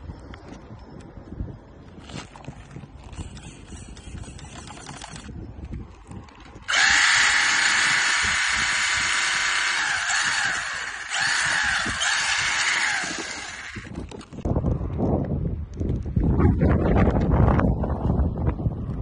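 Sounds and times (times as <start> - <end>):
electric motor whining: 3.0 - 5.3, 6.6 - 14.4.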